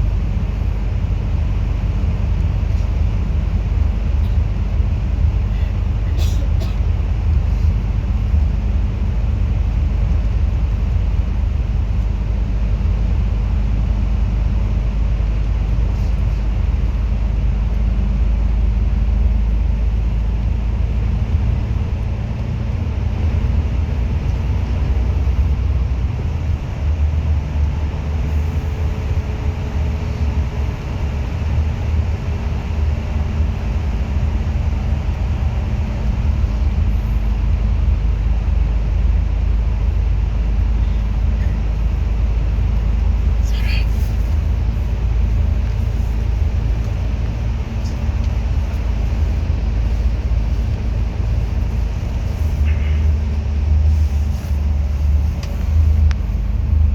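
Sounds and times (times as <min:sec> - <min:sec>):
bus engine and road rumble: 0:00.0 - 0:56.9.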